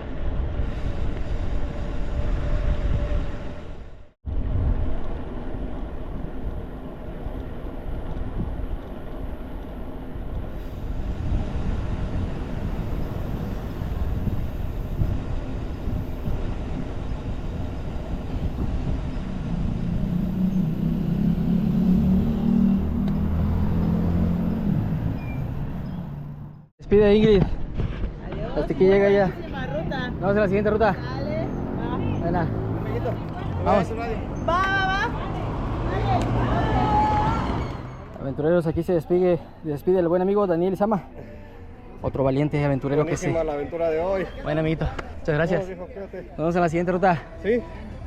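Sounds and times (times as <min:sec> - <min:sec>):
vehicle engine hum: 0:00.0 - 0:26.7, 0:29.3 - 0:38.4
rumbling road noise: 0:00.0 - 0:40.3.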